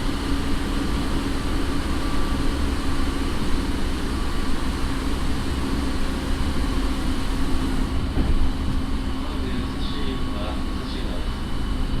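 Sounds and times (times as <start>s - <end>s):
steady tones from traction motors: 0.0s - 12.0s
train wheels rumbling on rail: 0.0s - 12.0s.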